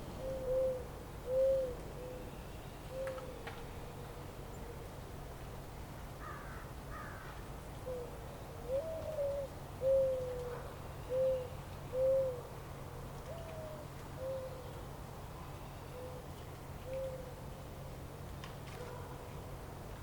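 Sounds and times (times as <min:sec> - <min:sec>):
bird hooting: 0:00.2 - 0:03.4, 0:07.9 - 0:12.5, 0:13.3 - 0:14.7.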